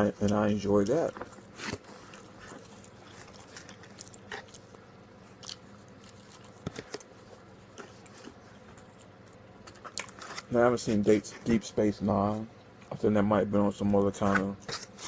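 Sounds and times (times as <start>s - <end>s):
person chewing food: 1.5s - 10.5s.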